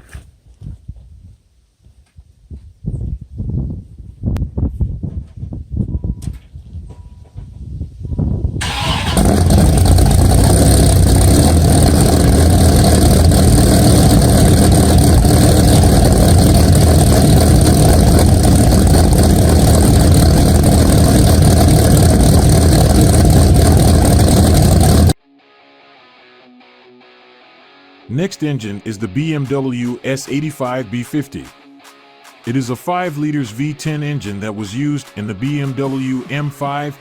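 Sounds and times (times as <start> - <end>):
car engine starting and idling: 8.6 - 25.2.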